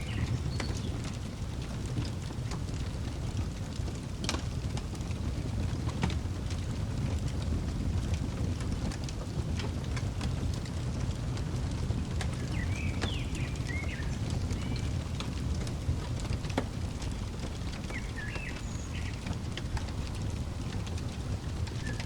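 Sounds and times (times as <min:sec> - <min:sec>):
songbird chirping: 0:00.0 - 0:01.2, 0:12.0 - 0:22.0
wood fire crackling and popping: 0:00.0 - 0:22.0.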